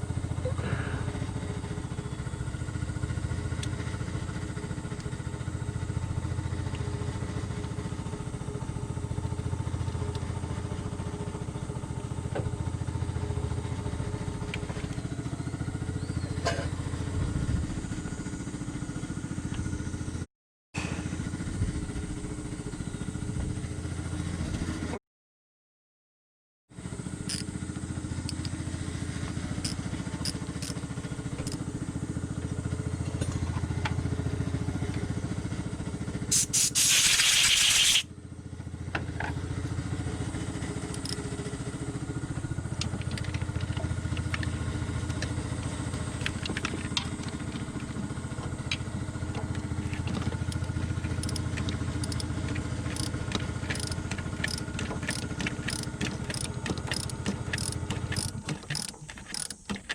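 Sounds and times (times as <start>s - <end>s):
loud hiss: 36.3s - 38.0s
car engine idling: 39.9s - 59.9s
light ticking: 50.4s - 59.9s.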